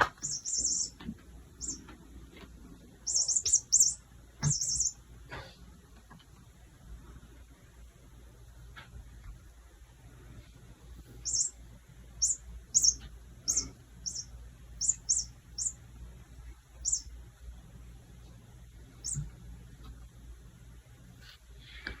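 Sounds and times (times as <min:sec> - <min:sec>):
cat toy chirping: 0:00.1 - 0:01.0, 0:01.6 - 0:01.9, 0:03.0 - 0:05.0, 0:11.2 - 0:11.6, 0:12.2 - 0:15.8, 0:16.8 - 0:17.1, 0:19.0 - 0:19.3.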